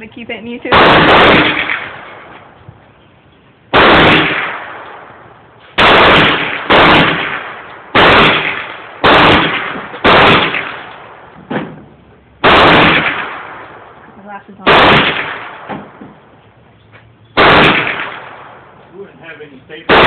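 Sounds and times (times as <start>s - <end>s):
pistol shots: 0.7s - 2.4s, 3.7s - 11.7s, 12.4s - 14.0s, 14.6s - 16.1s, 17.4s - 18.8s.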